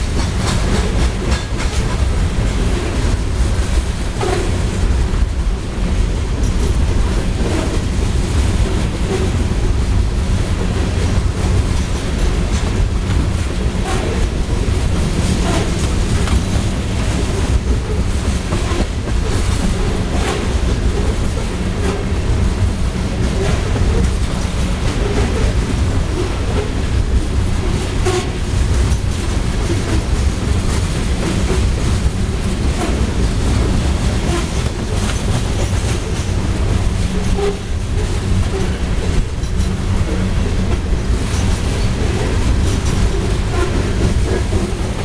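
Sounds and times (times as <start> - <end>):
wheels clacking over rail joints: 0.0 - 4.6, 10.5 - 45.0
freight train rolling past: 0.0 - 45.0.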